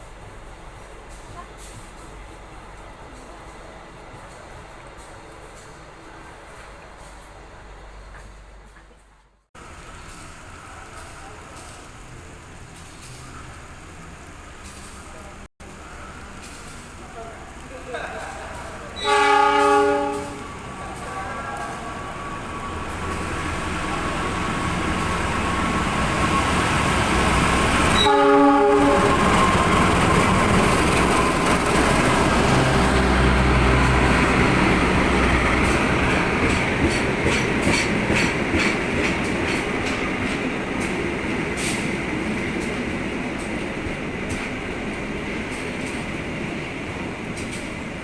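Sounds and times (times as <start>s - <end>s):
train rumble: 0.0s - 48.0s
wheels clicking over rail joints: 9.6s - 48.0s
train horn: 18.9s - 22.1s, 27.9s - 30.0s.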